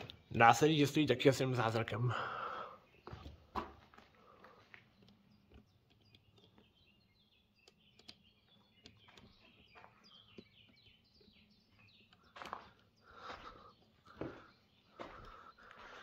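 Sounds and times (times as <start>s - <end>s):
faint songbirds chirping: 0.0s - 16.0s
soft clicks: 4.8s - 6.8s, 7.5s - 9.5s.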